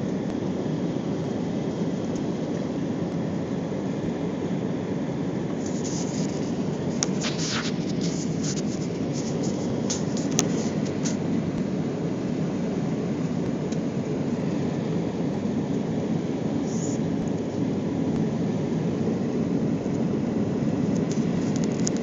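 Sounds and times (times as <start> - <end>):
airliner cabin engine roar: 0.0 - 22.0
short high crackles and clicks: 5.6 - 11.7.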